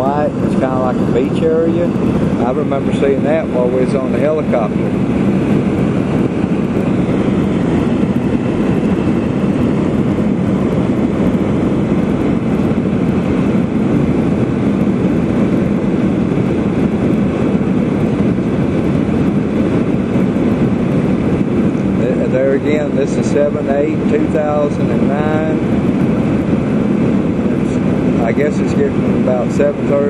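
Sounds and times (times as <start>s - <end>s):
jet engine and airflow in cabin: 0.0s - 30.0s.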